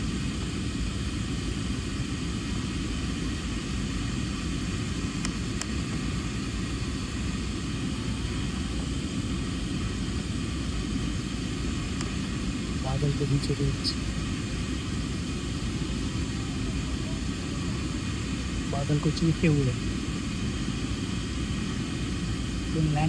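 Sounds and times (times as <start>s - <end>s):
aeroplane rumble and hiss: 0.0s - 23.0s.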